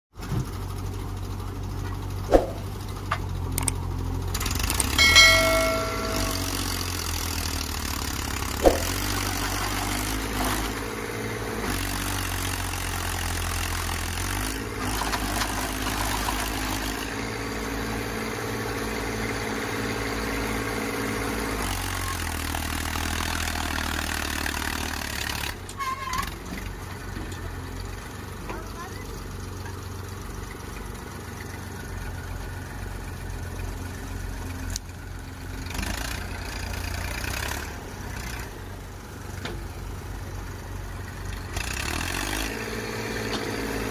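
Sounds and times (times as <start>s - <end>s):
tractor diesel engine running: 0.2s - 43.9s
brief high tone: 5.0s - 7.0s.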